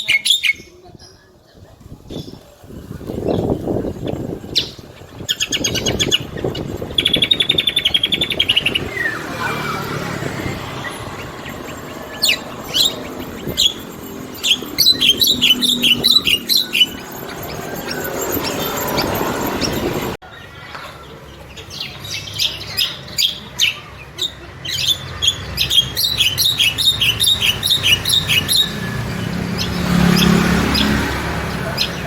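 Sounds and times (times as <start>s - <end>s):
songbird singing trills: 0.0s - 32.0s.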